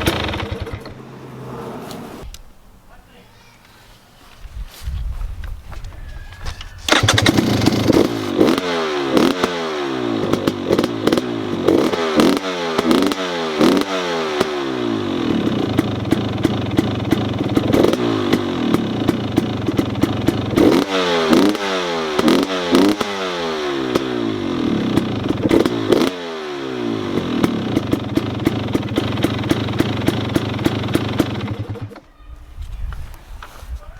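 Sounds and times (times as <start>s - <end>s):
two-stroke engine revving: 0.0s - 1.9s, 6.9s - 32.0s.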